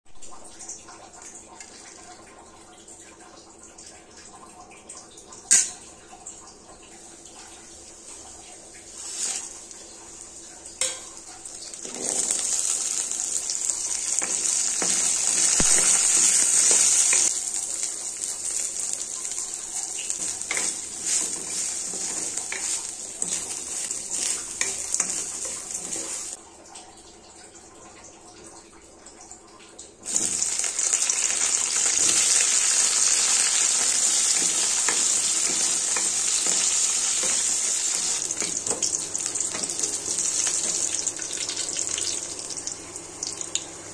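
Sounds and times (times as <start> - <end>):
food sizzling in a hot pan: 8.9 - 26.4, 30.1 - 43.8
wooden spatula scraping pan: 20.2 - 26.4.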